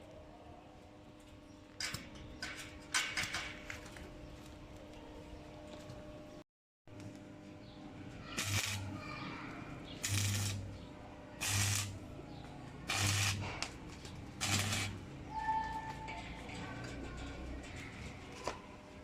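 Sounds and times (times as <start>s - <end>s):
low electrical welder buzz: 6.9s - 15.3s
welding arc crackle: 8.4s - 9.0s, 10.0s - 10.8s, 11.4s - 12.0s, 12.8s - 15.2s.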